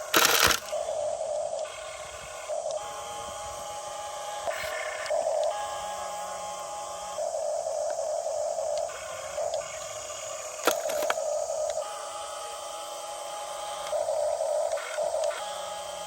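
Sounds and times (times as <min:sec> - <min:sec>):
sharp clicks: 0:00.0 - 0:00.8, 0:10.6 - 0:11.8
toy excavator motors whining: 0:00.0 - 0:16.0.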